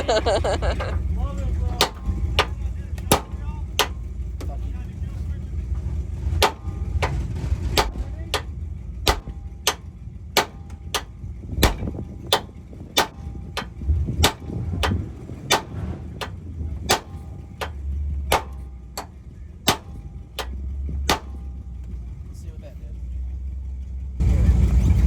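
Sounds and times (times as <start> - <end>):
hammer striking metal: 1.8 - 4.0, 6.4 - 21.9.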